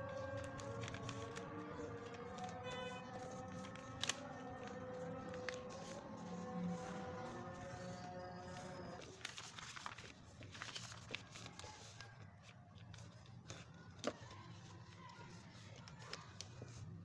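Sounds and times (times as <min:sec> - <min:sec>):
background music: 0:00.0 - 0:09.0
paper crinkling being folded: 0:00.0 - 0:17.0.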